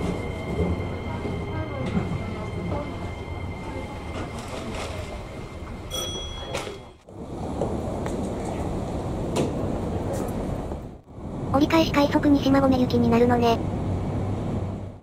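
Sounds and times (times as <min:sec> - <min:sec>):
train wheels and motors rumbling: 0:00.0 - 0:15.0
high ringing tone: 0:05.9 - 0:07.0.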